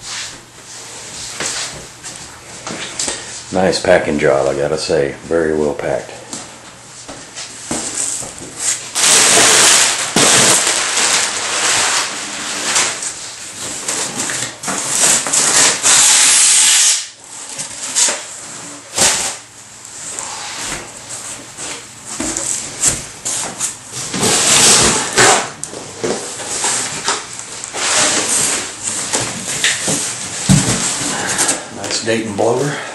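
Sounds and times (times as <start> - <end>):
packing material rustling: 7.9 - 17.0, 26.2 - 31.6.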